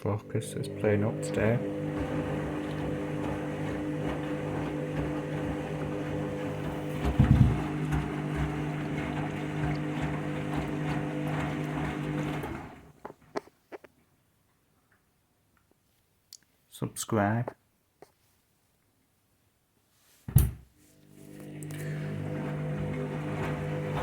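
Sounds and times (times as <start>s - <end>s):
washing machine motor humming: 0.0s - 13.0s, 20.8s - 24.0s
heavy low thump: 7.0s - 7.7s.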